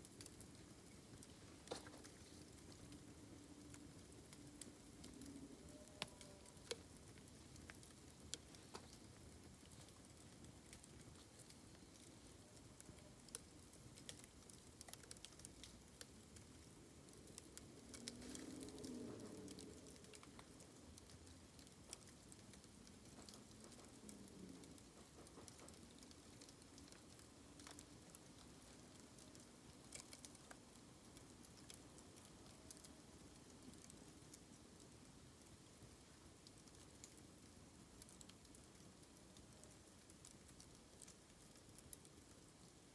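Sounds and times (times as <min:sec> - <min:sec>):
bamboo campfire crackling: 0:00.0 - 0:42.9
low steady hiss: 0:00.0 - 0:42.9.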